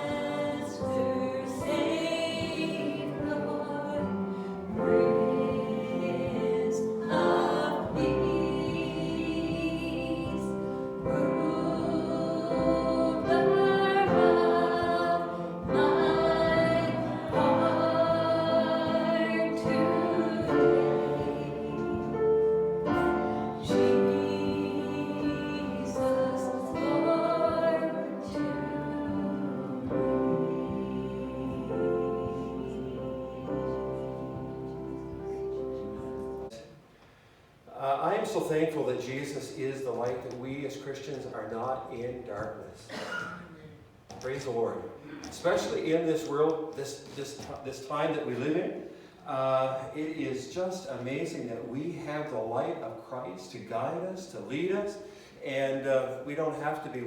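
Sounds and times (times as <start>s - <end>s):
choir singing gospel song: 0.0s - 36.6s.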